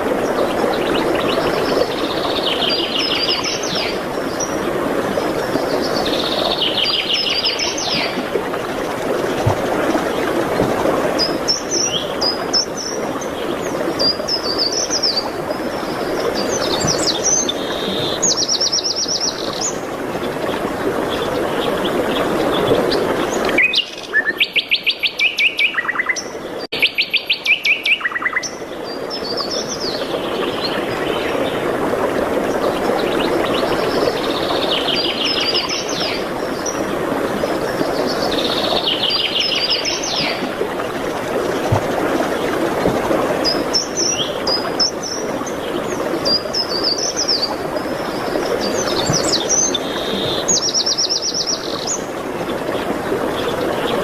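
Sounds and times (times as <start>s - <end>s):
songbirds trilling and chirping: 0.2s - 31.6s, 43.4s - 54.0s.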